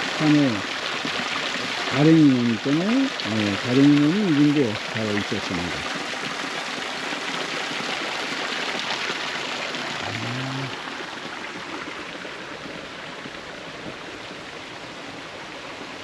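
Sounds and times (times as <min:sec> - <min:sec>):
mountain stream rushing: 0:00.0 - 0:16.0
person humming low: 0:09.9 - 0:10.8.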